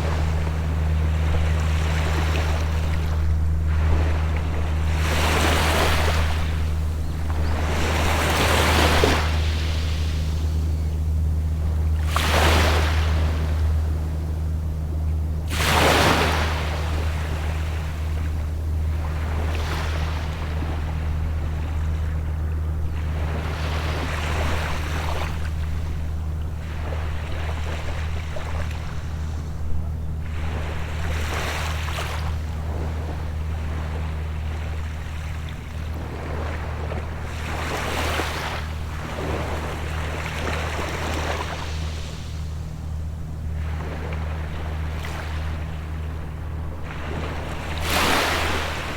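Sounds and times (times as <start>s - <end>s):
low engine drone: 0.0s - 48.9s
small sea waves washing: 30.3s - 48.9s.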